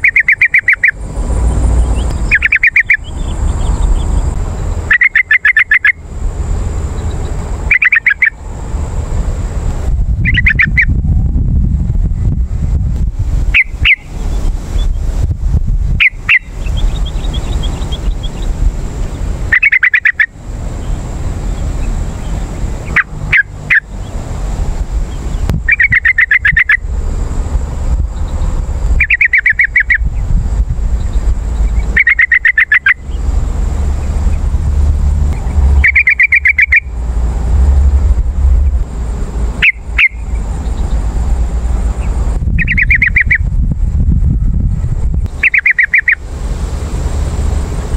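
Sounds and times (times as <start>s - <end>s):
bird calling in bubbling phrases: 0.0s - 1.0s, 2.2s - 3.1s, 4.9s - 6.0s, 7.7s - 8.4s, 32.0s - 33.0s, 35.8s - 36.9s, 45.4s - 46.2s
constant low rumble: 0.0s - 47.9s.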